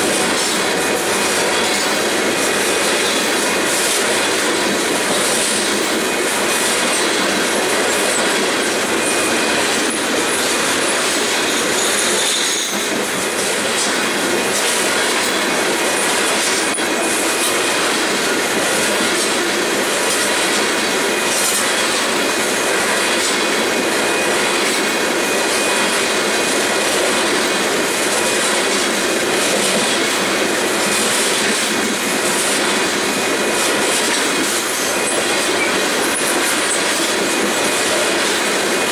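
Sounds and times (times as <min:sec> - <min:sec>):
clickety-clack over rail joints: 0:00.0 - 0:38.9
freight train rolling on rails: 0:00.0 - 0:38.9
faint wheel squeal: 0:11.5 - 0:12.8.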